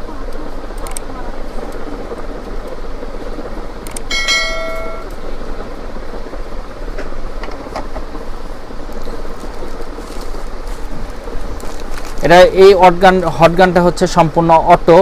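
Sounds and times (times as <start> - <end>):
steady background noise: 0.0 - 15.0
sharp clicks: 3.8 - 4.2
bell-like ringing tone: 4.1 - 5.2.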